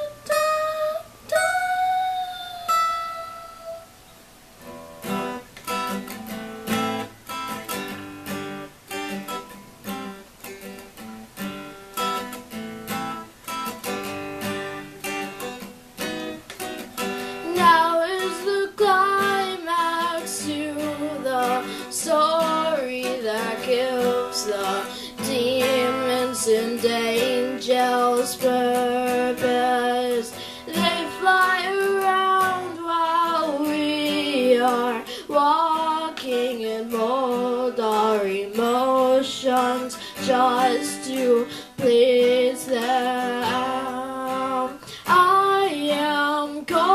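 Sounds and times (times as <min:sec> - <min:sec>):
acoustic guitar picking: 0:00.0 - 0:46.9
wordless vocal melody: 0:17.1 - 0:46.9.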